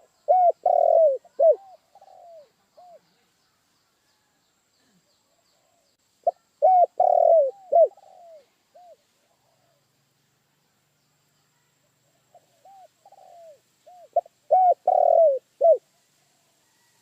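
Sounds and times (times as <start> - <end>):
dove cooing: 0.0 - 3.1, 5.7 - 9.8, 12.3 - 15.9.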